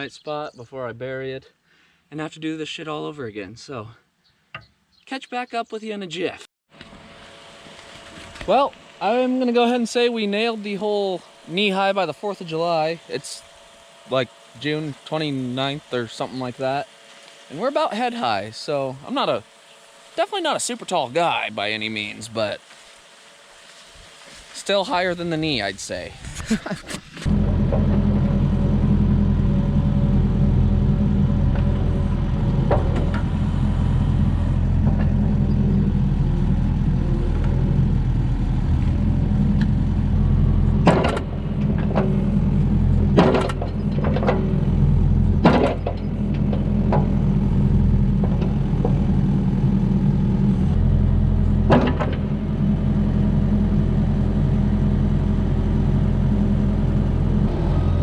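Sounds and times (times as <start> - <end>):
excavator diesel engine running: 27.2 - 58.0
sharp knocks: 40.8 - 42.2, 43.0 - 44.6, 45.4 - 47.2, 51.7 - 52.4.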